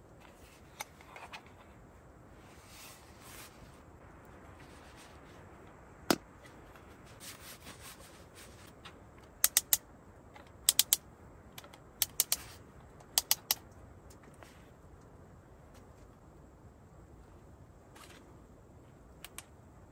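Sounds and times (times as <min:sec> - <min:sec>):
faint steady hiss: 0:00.0 - 0:19.9
sharp clicks: 0:09.2 - 0:14.2.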